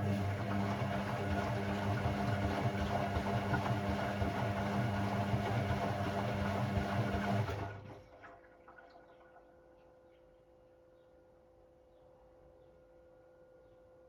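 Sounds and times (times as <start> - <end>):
washing machine humming: 0.0 - 9.4.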